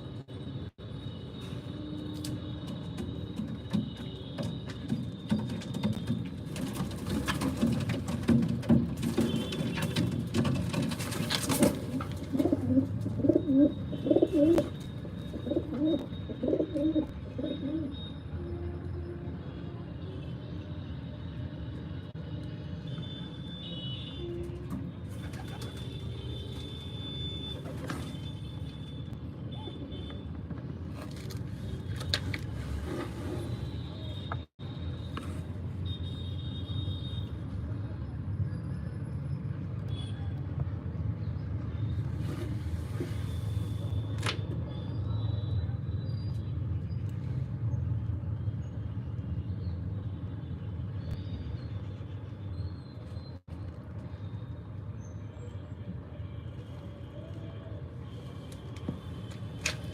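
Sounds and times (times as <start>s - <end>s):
pigeons cooing: 12.2s - 14.7s, 15.4s - 17.9s.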